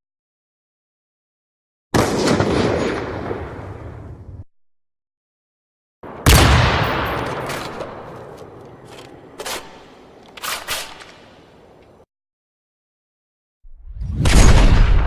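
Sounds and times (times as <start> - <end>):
sharp gunshots: 2.0 - 3.5, 6.0 - 8.2
gunshot blast: 2.0 - 3.9, 6.1 - 8.2, 14.1 - 15.0.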